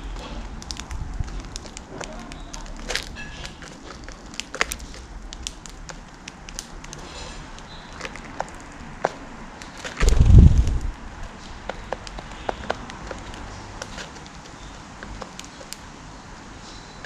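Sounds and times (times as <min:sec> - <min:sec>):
birds pecking at seeds: 0:00.0 - 0:17.0
loud low rumbling burst: 0:10.0 - 0:11.1.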